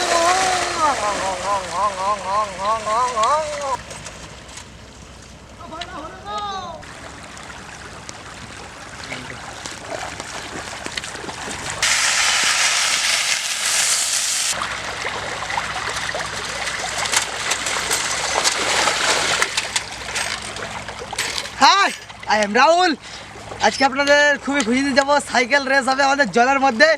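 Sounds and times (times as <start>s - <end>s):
hissing rush of splashing water: 0.0s - 2.7s, 6.8s - 19.6s
river water splashing and trickling: 0.0s - 26.9s.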